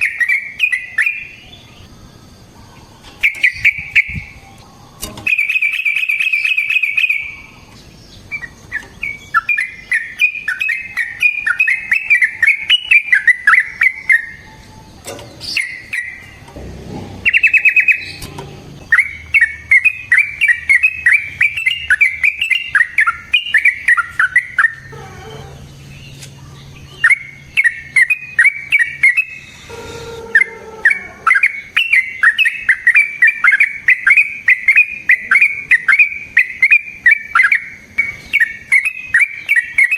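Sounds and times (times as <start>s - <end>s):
bird singing bubbling notes: 8.2s - 39.9s
bird rattle call: 15.0s - 25.3s.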